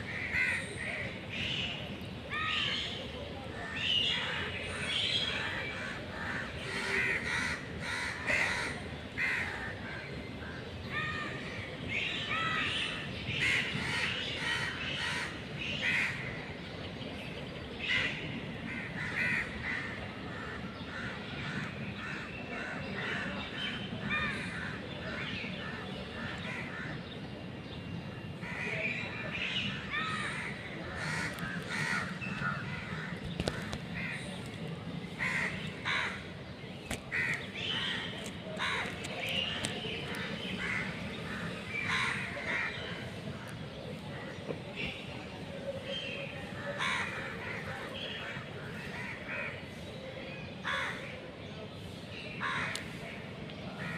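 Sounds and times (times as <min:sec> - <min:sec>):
crows cawing: 0:06.1 - 0:09.6, 0:30.0 - 0:34.2, 0:40.1 - 0:42.8, 0:46.8 - 0:47.6, 0:52.4 - 0:52.8.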